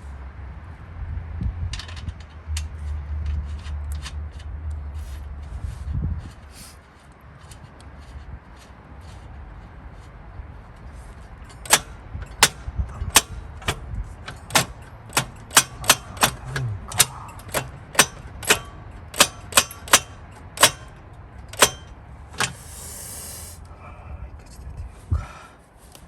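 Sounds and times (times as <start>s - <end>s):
sharp metallic taps: 11.4s - 22.6s.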